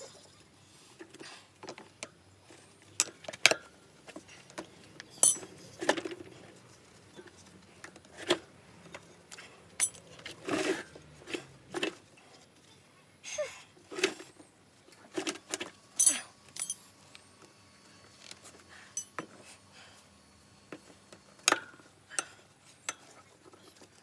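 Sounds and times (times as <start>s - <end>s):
hand tools and metal parts clinking: 3.0s - 6.3s, 8.2s - 11.9s, 15.2s - 17.0s, 18.9s - 19.4s.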